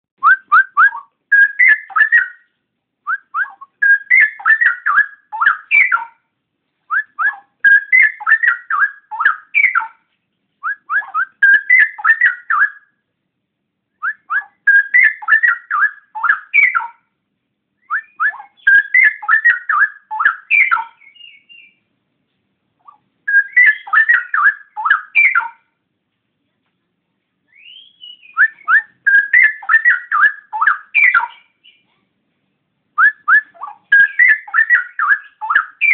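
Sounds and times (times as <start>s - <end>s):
bulbul singing: 0.2s - 13.0s, 14.0s - 17.2s, 17.8s - 21.9s, 22.8s - 25.8s, 27.5s - 31.9s, 33.0s - 35.9s.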